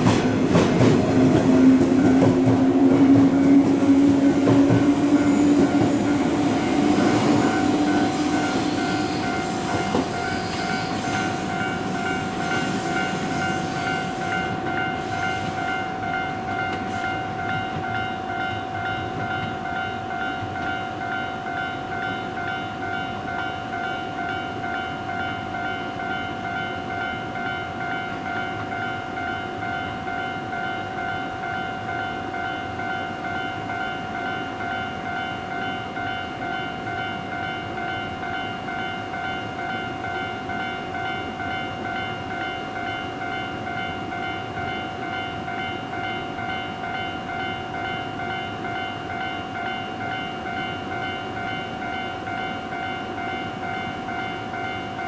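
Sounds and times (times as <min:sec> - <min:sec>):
electric train rumble: 0:00.0 - 0:23.0
pulsing ringing signal tone: 0:01.5 - 0:14.6.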